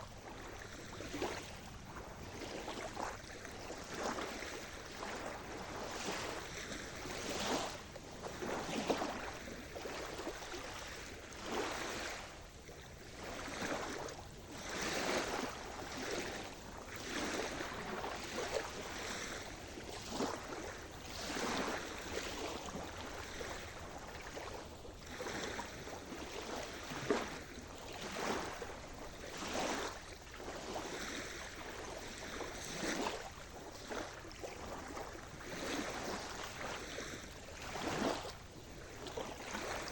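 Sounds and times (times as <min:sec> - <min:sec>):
small waves breaking on shore: 0:00.0 - 0:39.9.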